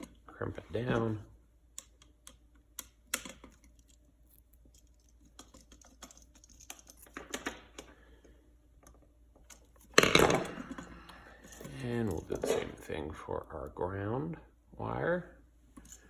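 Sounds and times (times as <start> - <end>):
hand tools and wire clicking: 0.9 - 12.9, 15.7 - 16.0.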